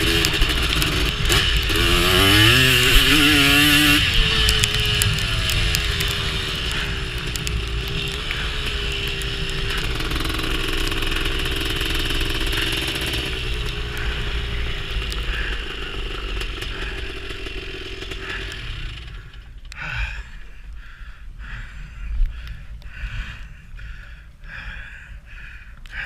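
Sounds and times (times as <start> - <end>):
two-stroke quad engine running: 0.0 - 20.2.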